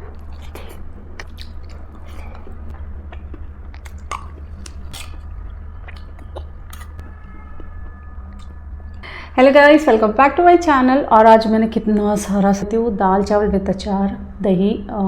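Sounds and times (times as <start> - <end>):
chewing and crunching food: 0.0 - 9.1
steady low hum: 0.0 - 15.0.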